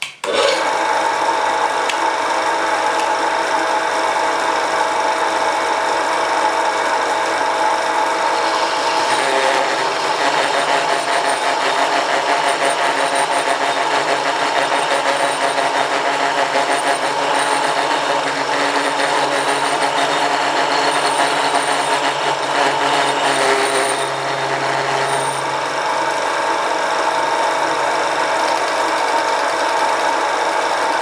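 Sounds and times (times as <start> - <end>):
lathe motor running with rattle: 0.3 - 31.0.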